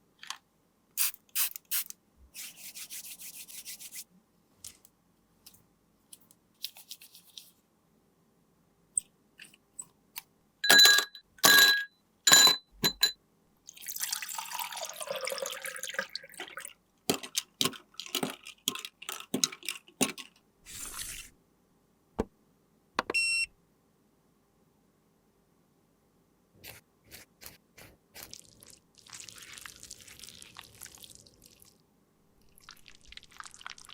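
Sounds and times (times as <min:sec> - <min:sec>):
ringing taps on containers: 0:10.6 - 0:13.2.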